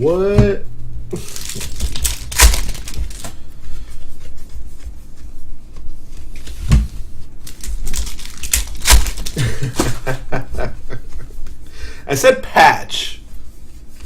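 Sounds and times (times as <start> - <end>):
foil wrappers crinkling: 1.2 - 3.4, 7.4 - 10.1.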